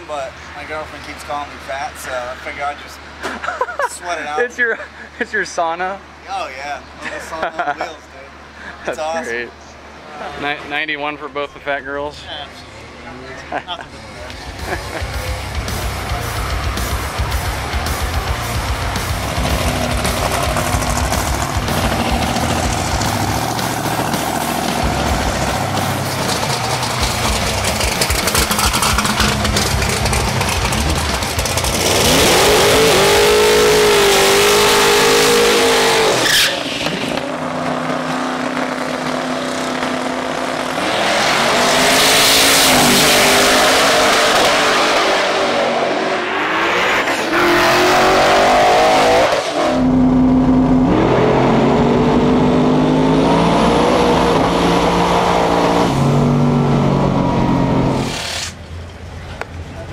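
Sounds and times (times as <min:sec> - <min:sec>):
drag car engines accelerating: 0:13.8 - 0:59.9.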